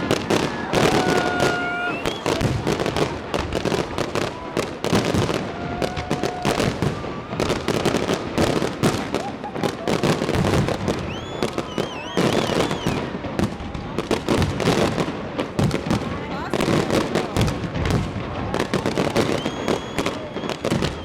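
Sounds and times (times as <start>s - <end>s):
whistling firework shells: 0.0s - 2.8s, 8.9s - 13.2s, 19.0s - 21.0s
fireworks cracks and bangs: 0.0s - 21.0s.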